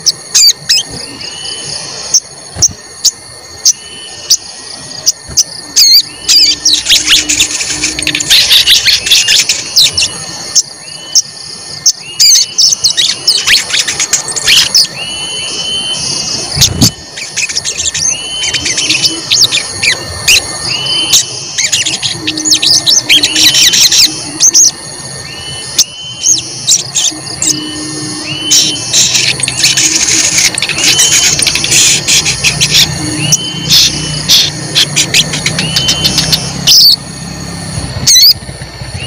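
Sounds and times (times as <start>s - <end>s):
whistled bird note: 0.0s - 37.0s
bird chirping: 0.0s - 39.0s.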